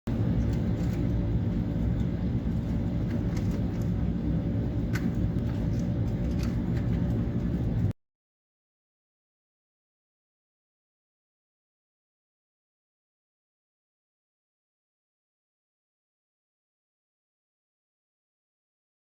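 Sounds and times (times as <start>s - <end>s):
aircraft engines and airflow rumble: 0.1s - 8.0s.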